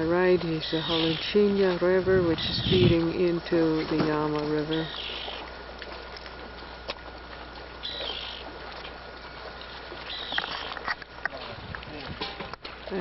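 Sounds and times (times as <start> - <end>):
bird calling: 0.6 - 1.4, 2.3 - 3.0, 4.6 - 5.5, 7.8 - 8.6, 9.6 - 11.0.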